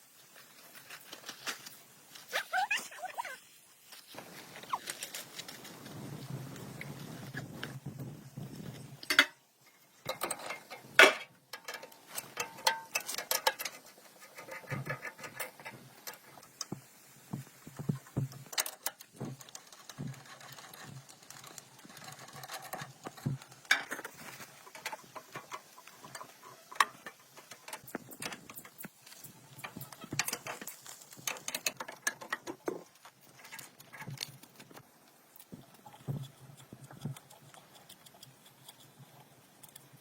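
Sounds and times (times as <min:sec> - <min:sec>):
hand tool clicks and knocks: 0:10.1 - 0:13.8.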